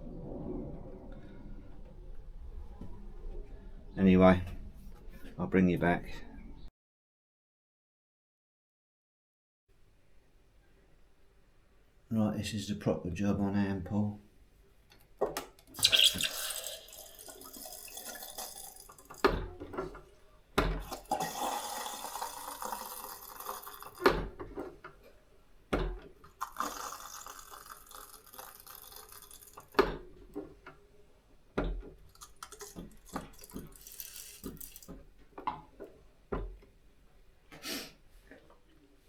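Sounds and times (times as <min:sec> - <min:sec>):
beer splashing into glass: 0:15.8 - 0:19.4, 0:32.6 - 0:34.9.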